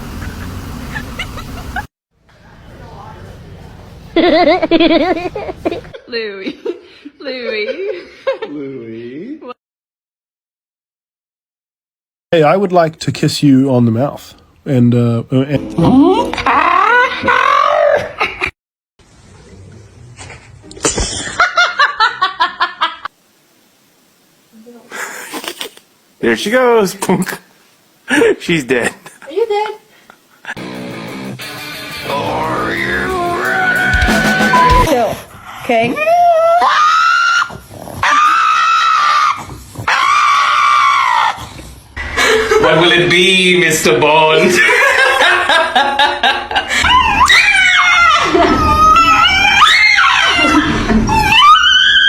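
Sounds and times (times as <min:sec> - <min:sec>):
person laughing: 0:00.1 - 0:01.9, 0:04.2 - 0:06.0, 0:42.0 - 0:42.8
pet screaming cries: 0:16.4 - 0:18.2, 0:32.2 - 0:35.0, 0:35.8 - 0:41.6, 0:46.8 - 0:52.0.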